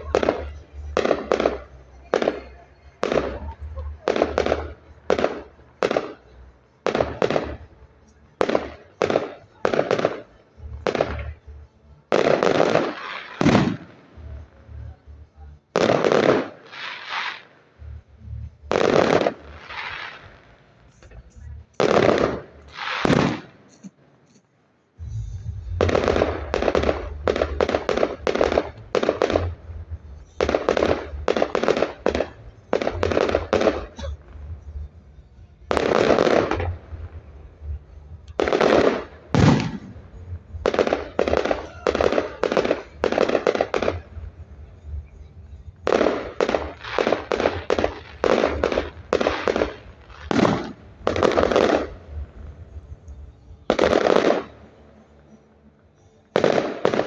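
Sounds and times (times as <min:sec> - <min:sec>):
fireworks bangs: 0:00.0 - 0:24.0, 0:25.0 - 0:34.9, 0:35.7 - 0:54.7, 0:56.4 - 0:57.0
low rumble: 0:17.8 - 0:22.7, 0:25.0 - 0:55.2.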